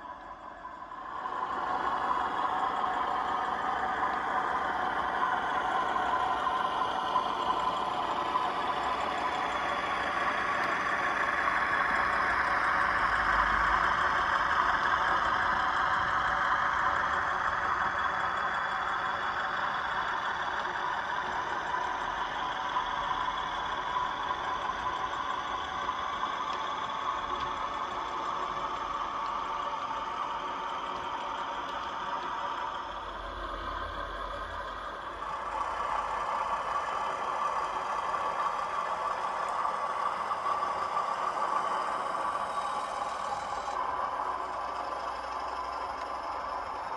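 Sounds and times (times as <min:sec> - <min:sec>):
model locomotive diesel engine sound: 0:00.0 - 0:46.9.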